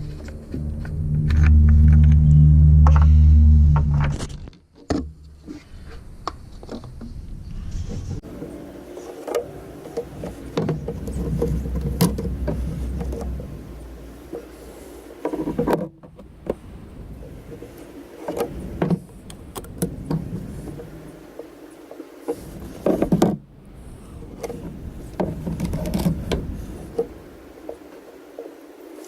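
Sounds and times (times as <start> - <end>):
tools and parts clattering: 8.2 - 16.0.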